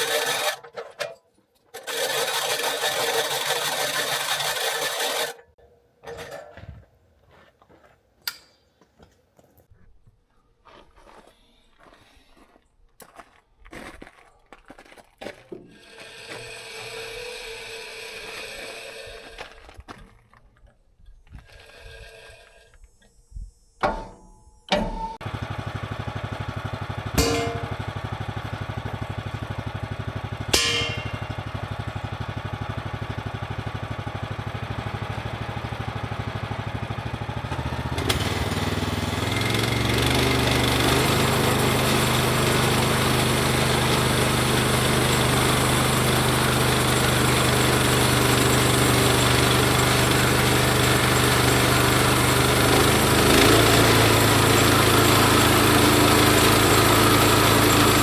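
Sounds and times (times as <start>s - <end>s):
engine running: 1.8s - 5.4s, 15.7s - 19.7s, 23.8s - 58.0s
sharp knocks: 30.5s - 31.4s.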